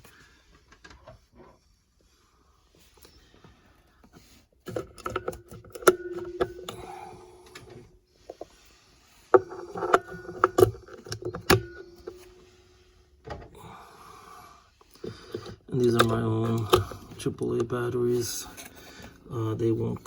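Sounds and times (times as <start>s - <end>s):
ringing tone: 5.9s - 7.7s, 11.2s - 12.8s.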